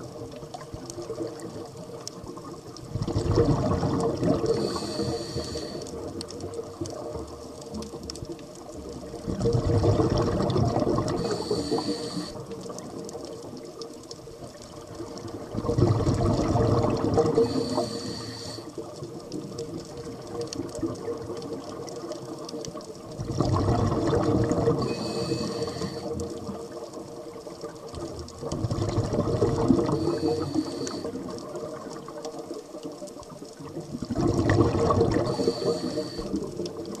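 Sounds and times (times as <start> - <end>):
exhaled bubbles underwater: 0.0 - 37.0
regulator inhale hiss: 4.3 - 6.2, 11.0 - 12.8, 17.2 - 19.0, 24.7 - 26.5, 29.6 - 31.6, 35.1 - 36.6.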